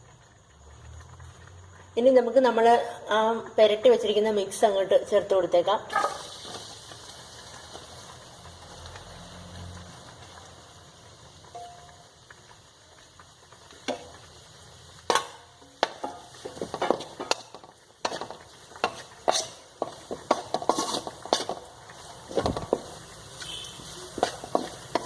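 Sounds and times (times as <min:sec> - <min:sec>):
faint sizzling: 0:00.0 - 0:25.0
spoon scraping a wok: 0:05.9 - 0:06.7, 0:15.1 - 0:25.0.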